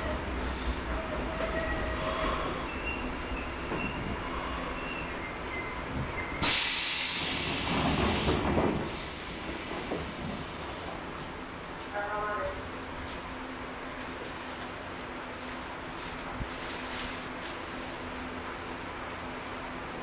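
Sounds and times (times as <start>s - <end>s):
electric train rumbling: 0.0s - 20.0s.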